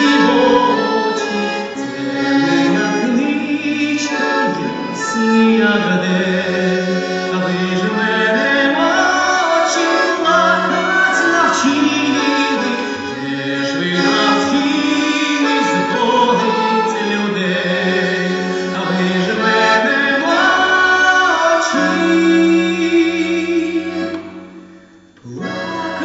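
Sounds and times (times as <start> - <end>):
singing with instrumental accompaniment: 0.0 - 26.0.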